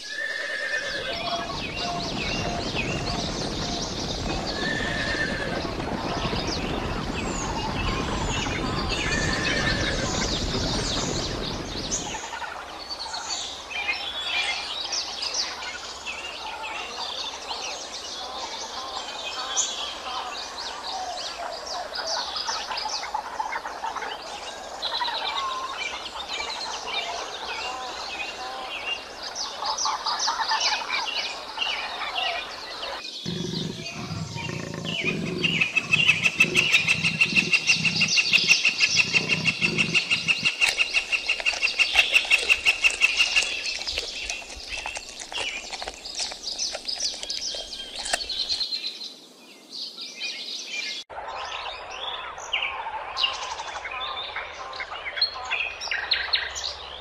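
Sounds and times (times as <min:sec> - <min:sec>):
zebra hooves running: 0:01.0 - 0:12.1, 0:33.3 - 0:48.6
small birds chirping: 0:24.1 - 0:50.0
low rumbling: 0:33.3 - 0:48.6.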